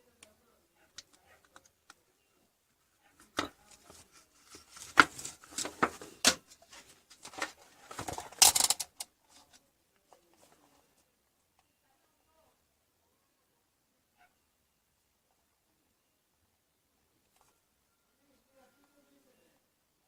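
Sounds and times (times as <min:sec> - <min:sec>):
clicks and knocks of objects handled: 0:03.1 - 0:10.6.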